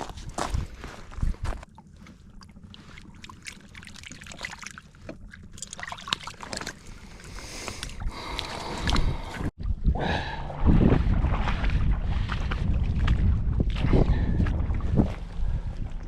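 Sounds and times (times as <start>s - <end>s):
low steady rumble: 0.0s - 16.0s
small water splashes and drips: 1.7s - 9.6s.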